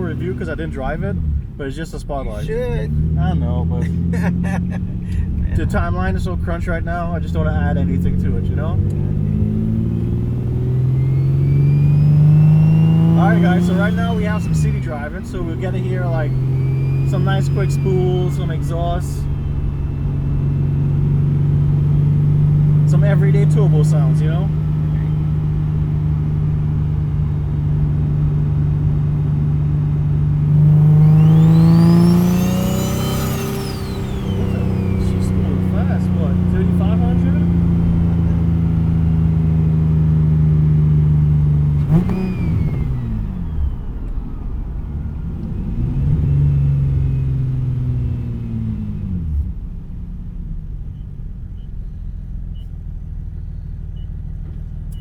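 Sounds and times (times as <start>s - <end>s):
car engine accelerating: 0.0s - 55.0s
turbo whistle: 10.9s - 14.6s, 16.1s - 20.9s
turbo spool whine: 16.0s - 21.0s, 30.6s - 37.4s.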